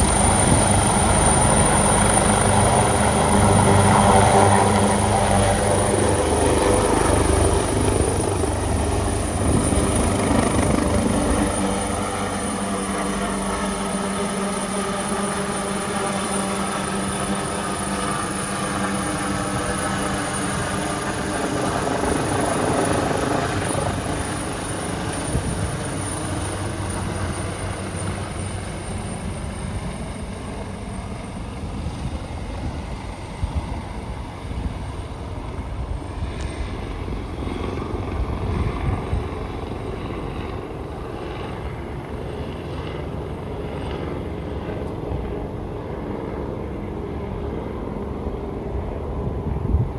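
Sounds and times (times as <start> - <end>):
helicopter turbine whine and rotor: 0.0 - 49.9.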